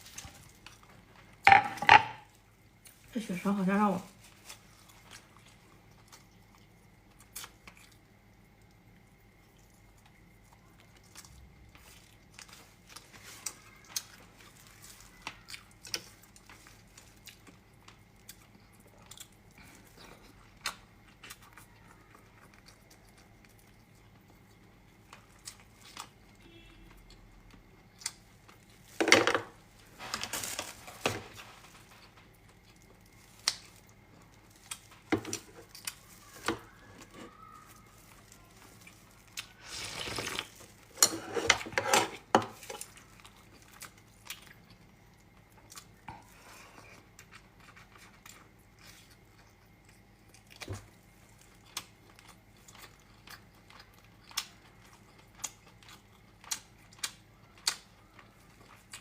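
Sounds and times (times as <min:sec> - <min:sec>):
quiet chewing: 0:00.0 - 0:01.4, 0:04.1 - 0:29.0, 0:31.3 - 0:59.0
dishes clattering: 0:01.5 - 0:02.2.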